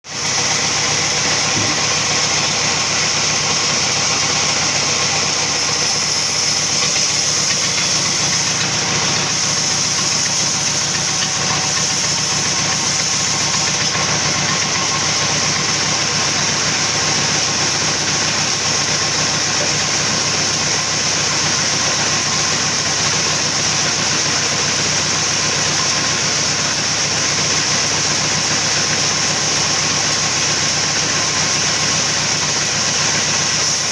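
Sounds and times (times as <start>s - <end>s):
sawmill saw hissing: 0.1s - 33.9s
motor humming: 0.4s - 26.1s.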